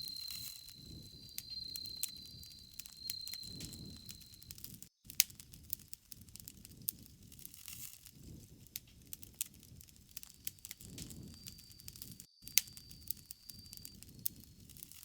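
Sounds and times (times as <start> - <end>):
low rumble of flames: 0.0 - 4.4, 8.2 - 12.2.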